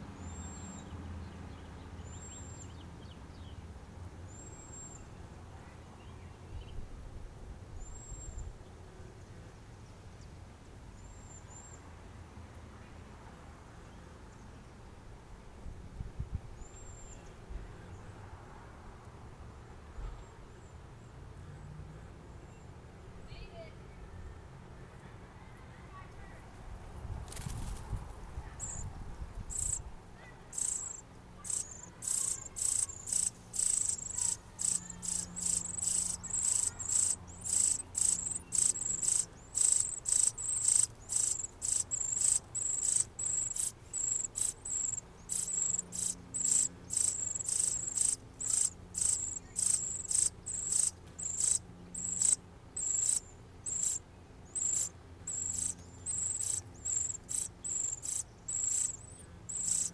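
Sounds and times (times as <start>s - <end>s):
nestlings cheeping: 28.6s - 28.8s, 29.5s - 29.8s, 30.5s - 59.9s.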